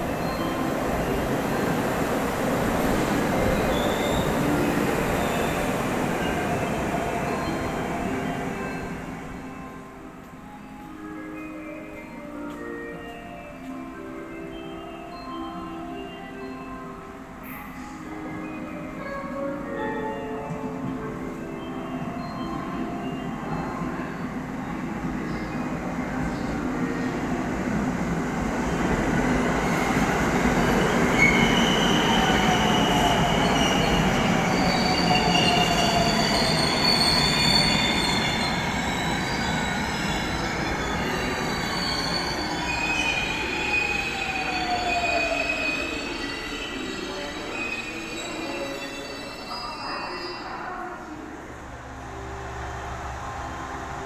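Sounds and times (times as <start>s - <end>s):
train wheels squealing on rails: 2.8s - 9.0s, 28.6s - 51.2s
train rumble: 20.5s - 54.0s.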